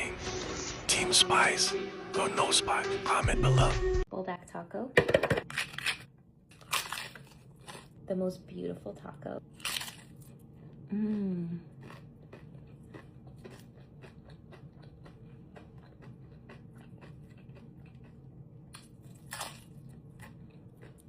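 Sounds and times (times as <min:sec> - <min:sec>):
chewing crunchy food: 0:05.5 - 0:08.0, 0:09.6 - 0:21.0.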